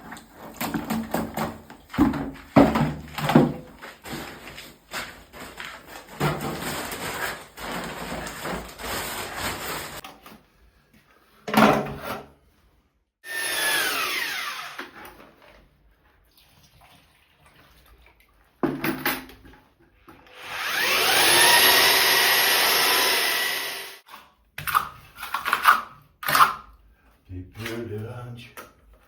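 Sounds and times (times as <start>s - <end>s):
electric power tool motor: 13.3s - 14.9s, 20.3s - 24.0s.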